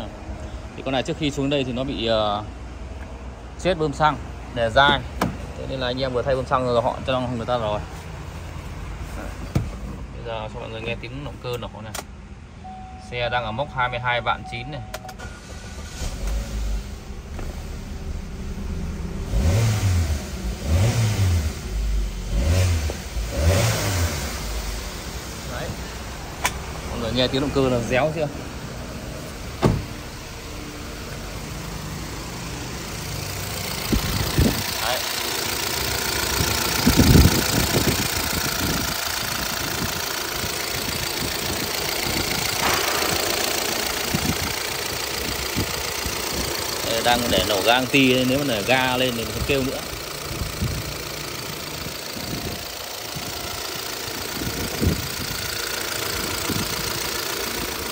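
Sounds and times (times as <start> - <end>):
car engine idling and revving: 0.0 - 57.9
loud thump: 29.6 - 30.0, 42.5 - 44.6
engine knocking: 48.7 - 57.9.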